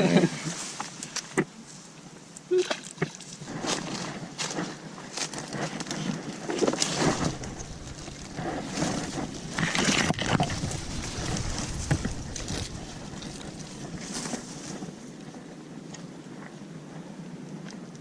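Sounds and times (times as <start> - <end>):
rustling noise: 0.4 - 1.9, 3.4 - 15.5
wind rumble on microphone: 3.4 - 18.0.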